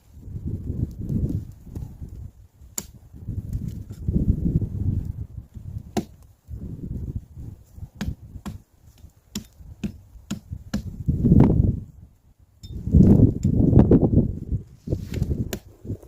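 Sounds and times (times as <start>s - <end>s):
dull low thuds: 0.3s - 11.8s
sharp knocks and cracks: 2.7s - 4.0s, 5.8s - 6.3s, 8.0s - 11.0s, 15.1s - 15.7s.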